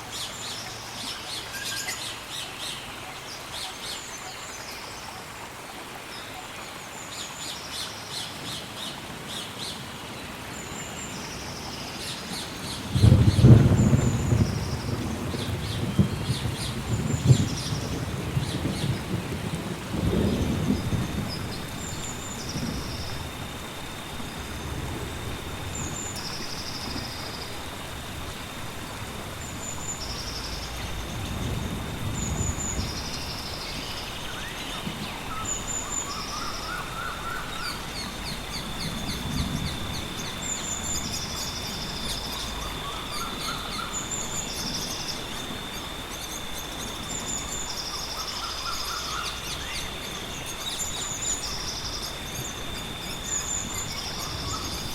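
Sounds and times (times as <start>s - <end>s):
insect drone: 0.0s - 54.9s
distant thunder rumbling: 12.8s - 54.9s.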